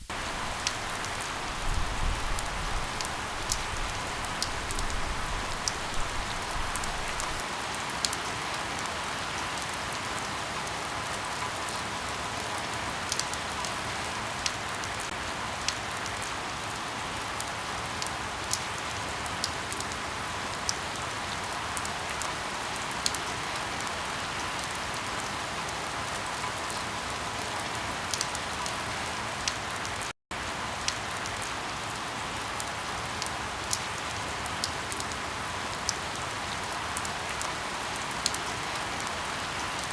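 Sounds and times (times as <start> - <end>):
firewood crackling: 0.0 - 7.4
steady rain: 0.0 - 39.9.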